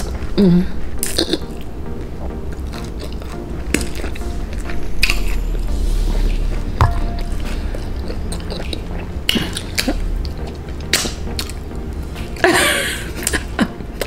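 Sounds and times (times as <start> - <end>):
wet chewing and lip smacks: 1.0 - 5.4, 7.7 - 11.6.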